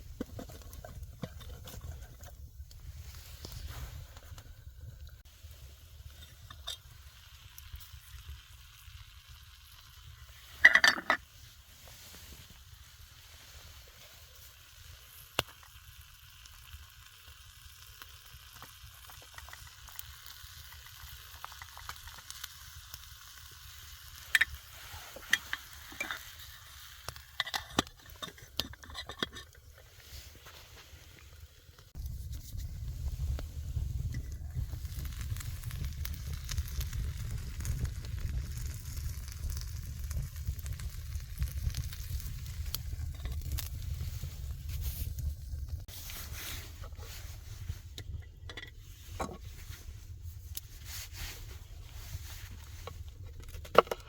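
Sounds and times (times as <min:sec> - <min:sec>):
food sizzling in a pan: 0:05.2 - 0:27.8.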